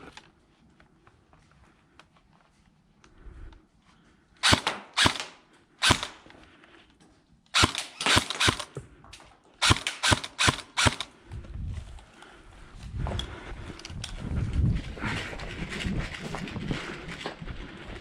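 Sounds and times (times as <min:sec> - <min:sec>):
airsoft guns firing: 0:04.4 - 0:06.3, 0:07.6 - 0:08.8, 0:09.6 - 0:11.1.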